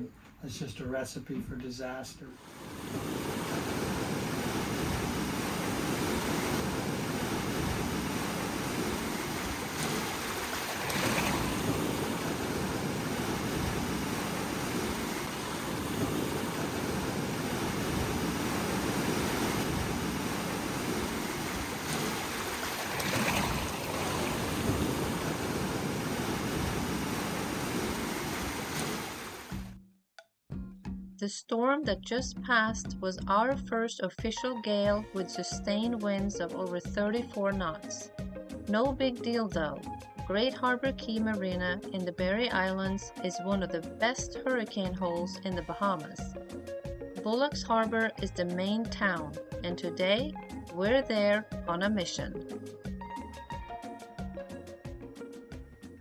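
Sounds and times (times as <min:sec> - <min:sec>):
water noise: 0:02.4 - 0:29.7.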